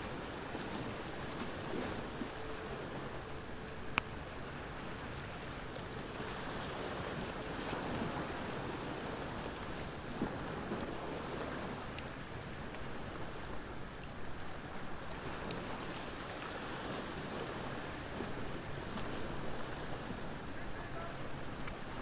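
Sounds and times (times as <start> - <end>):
ocean waves: 0.0 - 22.0
wood fire crackling: 3.3 - 4.2.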